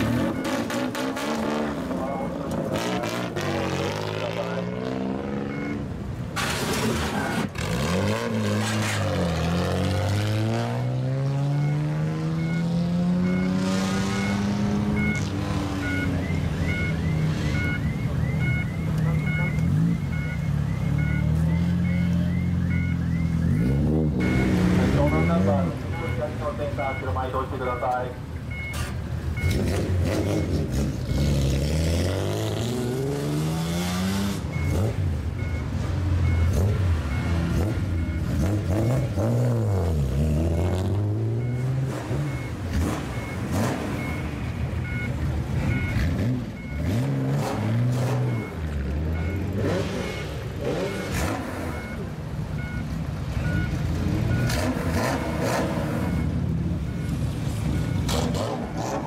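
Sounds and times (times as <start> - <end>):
car engines revving: 0.0 - 59.0
faint electronic beep: 1.9 - 2.5, 3.9 - 5.8, 11.2 - 31.5, 34.5 - 39.3, 40.4 - 43.4, 44.0 - 47.0, 48.2 - 54.6, 56.0 - 58.2.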